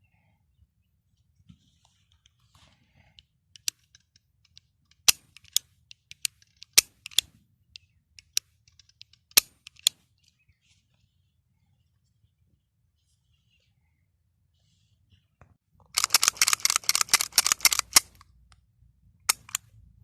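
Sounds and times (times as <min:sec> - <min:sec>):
pistol mechanism clicking: 0:03.6 - 0:10.0, 0:16.0 - 0:18.3, 0:19.3 - 0:19.7.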